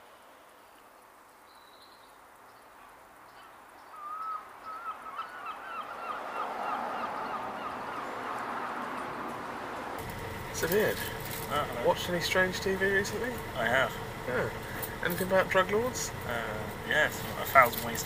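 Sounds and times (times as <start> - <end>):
bird calling: 1.5 - 18.0
rush of background noise: 5.0 - 18.0.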